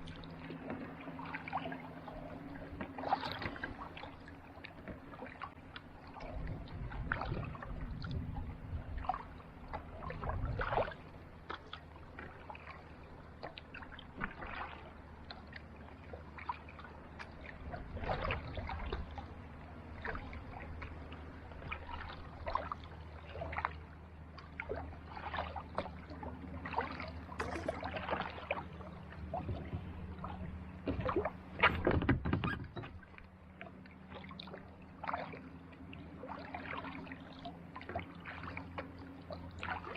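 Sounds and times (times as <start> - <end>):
steady low hum: 0.0 - 32.0
paddle splashing water: 0.0 - 39.9.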